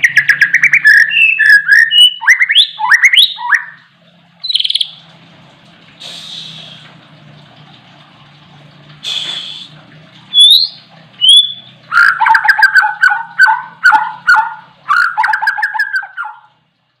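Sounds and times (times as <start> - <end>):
songbird whistling and chattering: 0.0 - 3.8, 10.3 - 16.5.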